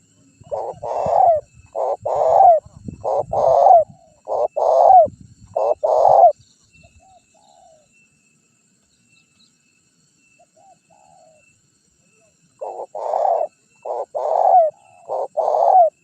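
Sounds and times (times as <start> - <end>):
dove cooing: 0.0 - 6.4, 12.6 - 16.0.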